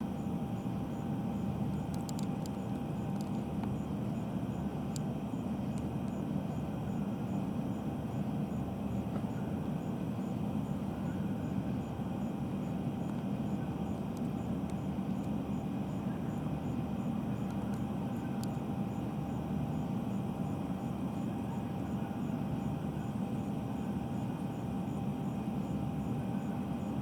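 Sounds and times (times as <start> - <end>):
faint steady whine: 0.0 - 27.0
faint clicks: 1.7 - 3.8.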